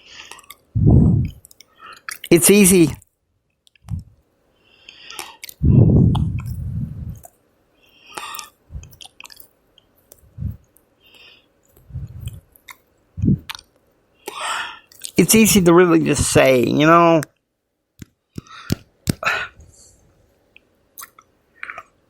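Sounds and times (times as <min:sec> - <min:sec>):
low rumble: 0:00.8 - 0:01.4, 0:05.6 - 0:07.3, 0:10.3 - 0:10.6, 0:11.8 - 0:12.4, 0:13.2 - 0:13.5
chewing mouth sounds: 0:08.1 - 0:10.2, 0:11.7 - 0:13.8, 0:21.0 - 0:22.0.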